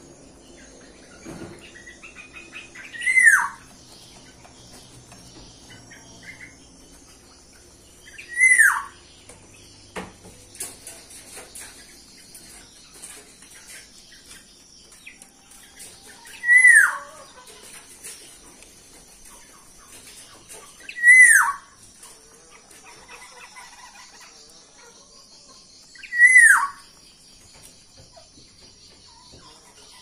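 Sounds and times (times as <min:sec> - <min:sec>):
faint bird chirps: 0:22.6 - 0:30.0.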